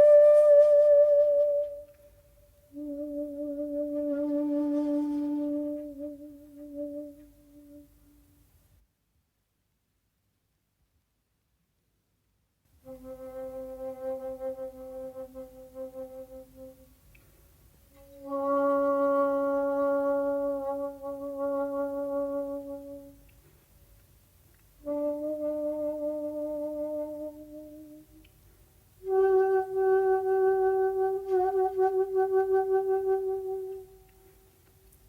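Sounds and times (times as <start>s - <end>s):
shakuhachi long notes: 0.0s - 8.3s, 12.8s - 17.2s, 17.9s - 23.3s, 24.8s - 28.4s, 29.0s - 34.6s.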